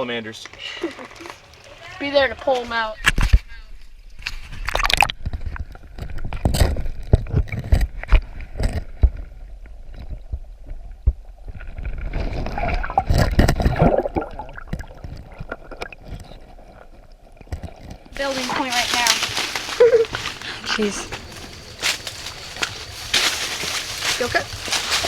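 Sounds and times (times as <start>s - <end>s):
water sloshing and gurgling: 8.4s - 18.6s.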